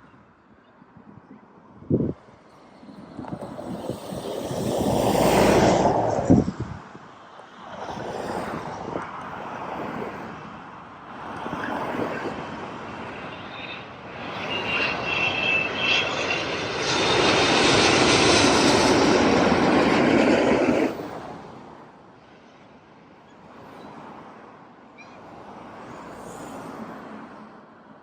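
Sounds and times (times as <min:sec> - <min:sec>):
jet engine roar: 0:02.6 - 0:06.9, 0:11.1 - 0:22.6
faint high whine: 0:13.0 - 0:19.8.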